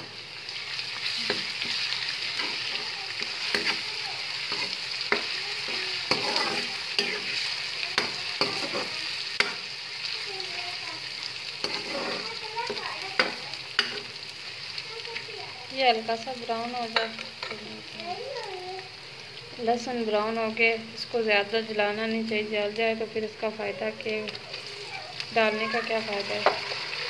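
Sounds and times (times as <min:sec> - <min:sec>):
onions sizzling in hot oil: 0:00.0 - 0:27.0
spoon knocking and scraping pan: 0:01.0 - 0:03.9, 0:04.5 - 0:09.7, 0:11.6 - 0:14.1, 0:16.9 - 0:17.7, 0:26.3 - 0:26.8.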